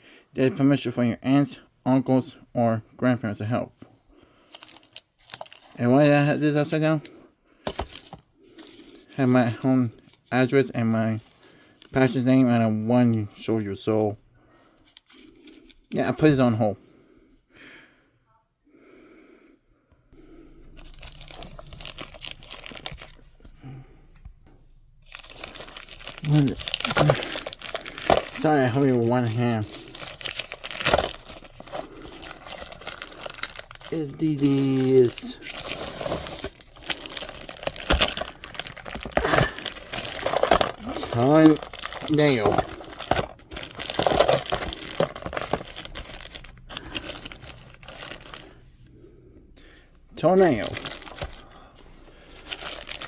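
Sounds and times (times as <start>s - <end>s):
packaging being torn and crinkled: 20.7s - 23.3s, 25.0s - 48.5s, 50.4s - 51.4s, 52.4s - 53.0s.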